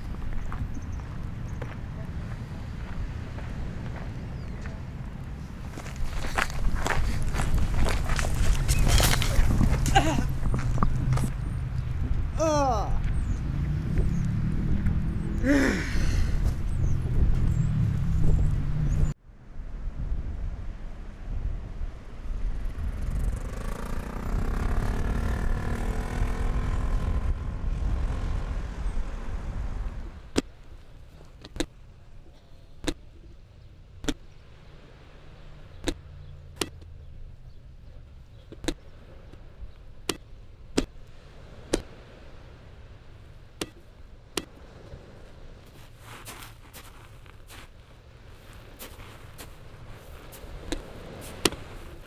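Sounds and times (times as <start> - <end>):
motor vehicle passing: 0.0 - 19.2, 22.2 - 31.4, 33.7 - 39.7.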